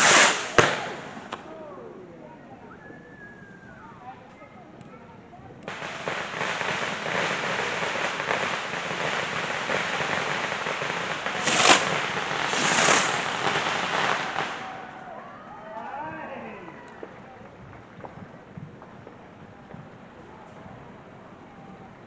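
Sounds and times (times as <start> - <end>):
firework bang: 0.0 - 1.5, 5.7 - 14.9
fireworks hissing crackle: 0.0 - 1.5, 5.7 - 15.0.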